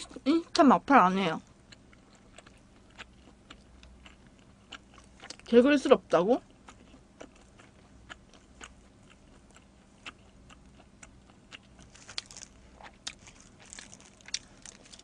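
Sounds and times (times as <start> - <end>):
chewing pizza: 1.4 - 15.0
plastic glove crinkling: 11.8 - 15.0.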